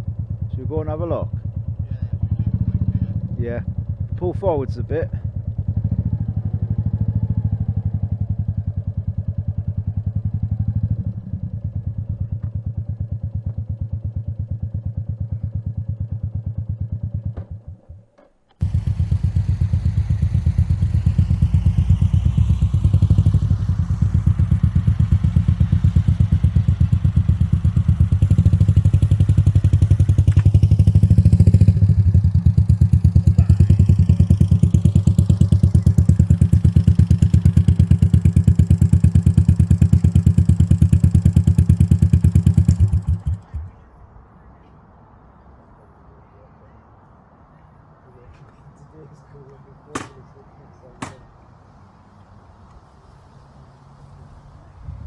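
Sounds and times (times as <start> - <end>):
motorcycle engine running: 0.0 - 44.0
wind and road hiss: 18.6 - 40.8, 43.9 - 55.0.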